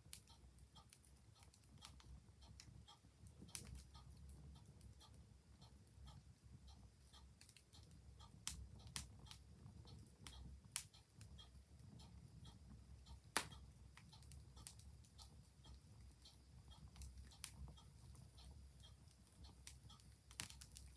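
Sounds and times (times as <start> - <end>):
clock ticking: 0.0 - 20.9
wood fire crackling: 0.0 - 20.9
sharp pops of fire: 13.3 - 13.6, 20.3 - 20.9.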